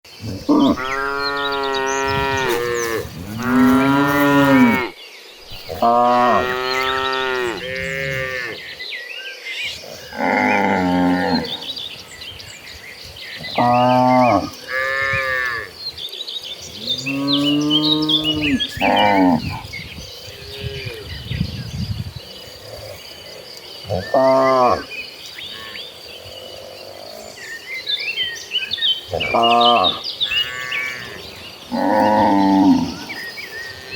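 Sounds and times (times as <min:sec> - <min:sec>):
cattle mooing: 0:00.4 - 0:04.9, 0:05.5 - 0:08.6.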